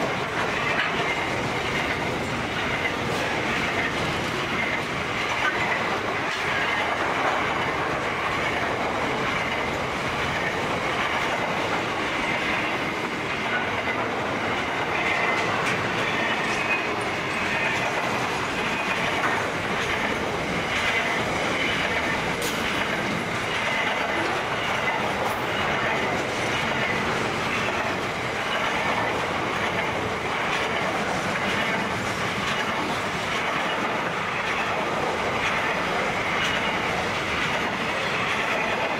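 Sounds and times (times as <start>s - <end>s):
freight train wheels on rail: 0.0s - 38.9s
wheels clicking over rail joints: 0.0s - 38.9s.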